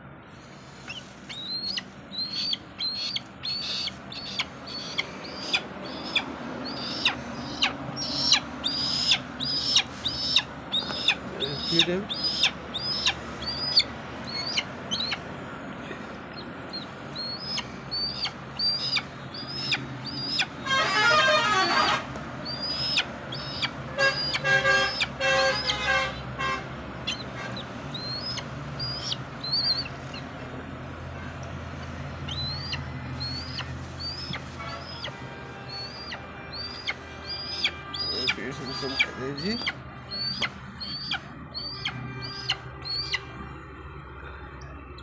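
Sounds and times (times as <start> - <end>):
young eagle peeping: 0.7 - 15.3, 16.3 - 21.0, 22.4 - 26.3, 27.0 - 30.4, 31.8 - 43.3
horn-like tooting: 20.6 - 22.1.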